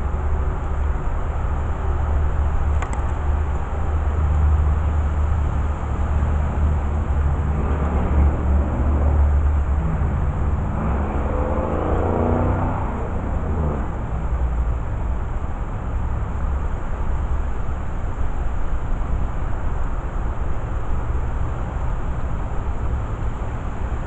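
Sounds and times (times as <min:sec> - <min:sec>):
steady low rumble: 0:00.0 - 0:24.0
car driving past: 0:06.0 - 0:14.4.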